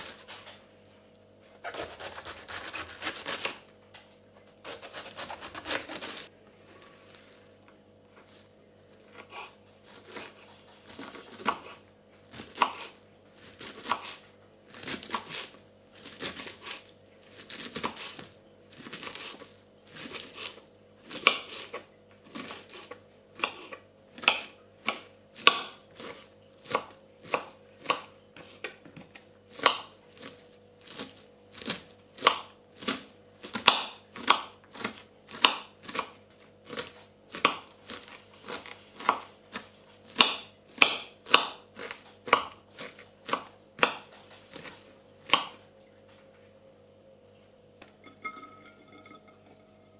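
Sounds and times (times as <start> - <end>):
knife chopping on cutting board: 4.6 - 6.3, 9.1 - 16.8, 29.6 - 45.6.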